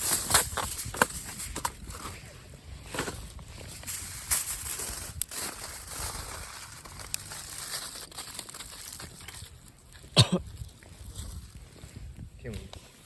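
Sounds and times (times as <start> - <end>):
aluminium foil crinkling: 0.0 - 2.1, 3.7 - 11.6.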